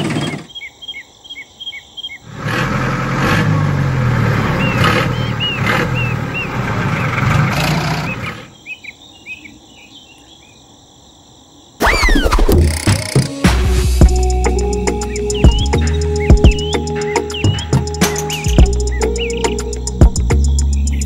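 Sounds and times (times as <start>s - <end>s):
small birds chirping: 0.0s - 2.3s, 3.5s - 13.2s, 14.0s - 21.0s.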